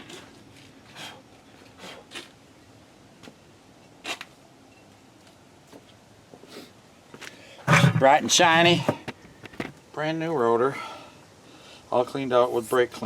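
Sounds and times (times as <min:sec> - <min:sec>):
scraping and rubbing on brake parts: 0:07.6 - 0:09.7.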